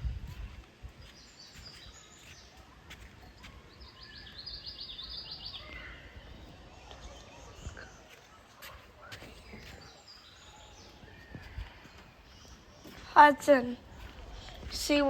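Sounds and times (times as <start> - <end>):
small bird chirping and trilling: 0.3 - 8.3.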